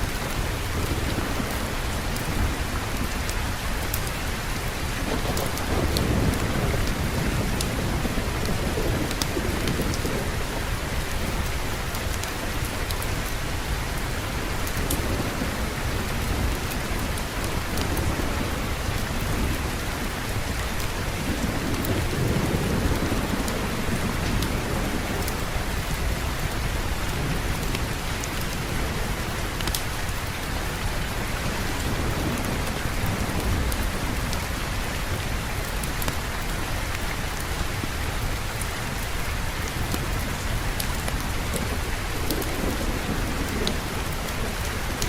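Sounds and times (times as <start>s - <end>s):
rain falling: 0.0s - 45.0s
low rolling thunder: 0.2s - 13.1s, 14.2s - 36.1s, 38.3s - 45.0s
faint sharp clicks: 29.6s - 29.8s.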